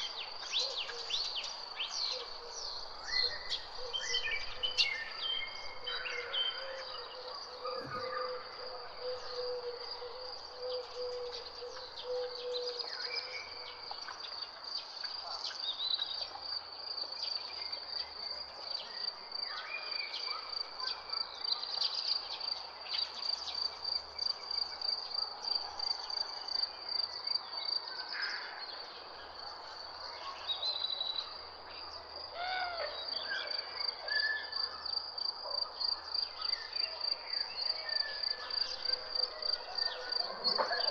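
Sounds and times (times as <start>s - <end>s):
birds chirping and calling: 0.0s - 13.8s, 37.6s - 40.9s.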